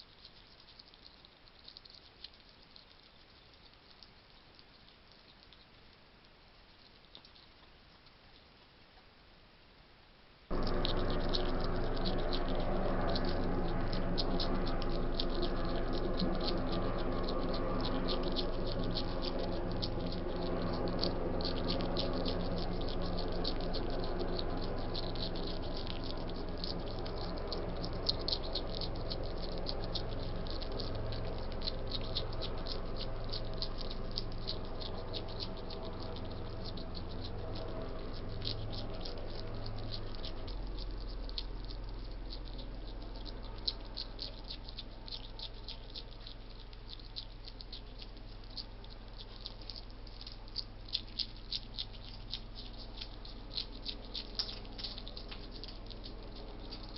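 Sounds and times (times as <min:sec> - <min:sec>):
hedgehog chewing and crunching food: 0:00.0 - 0:56.9
low electrical hum: 0:00.0 - 0:56.9.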